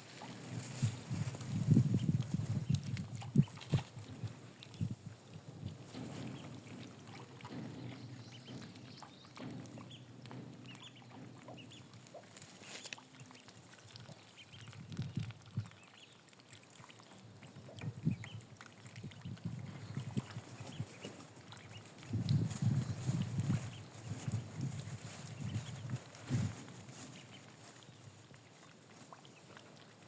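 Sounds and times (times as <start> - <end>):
faint water sounds: 0.0 - 30.0
ducks calling: 5.9 - 14.6.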